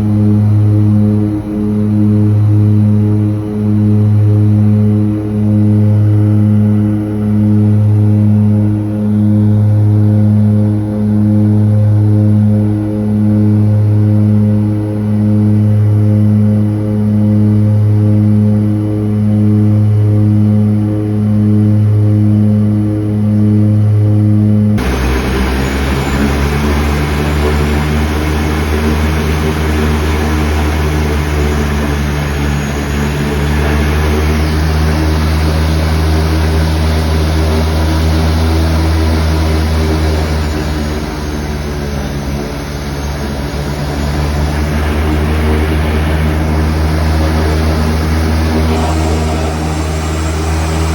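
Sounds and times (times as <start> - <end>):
propeller engines droning: 0.0 - 50.9.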